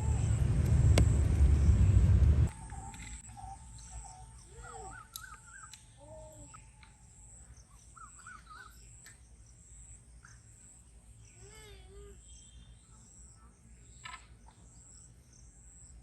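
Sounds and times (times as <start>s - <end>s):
birds warbling: 0.0s - 9.0s
low arched bird calls: 0.0s - 9.6s.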